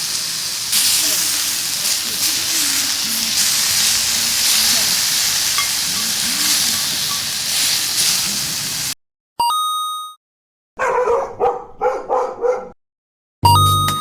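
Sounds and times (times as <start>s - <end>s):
food sizzling in a hot pan: 0.0s - 9.0s.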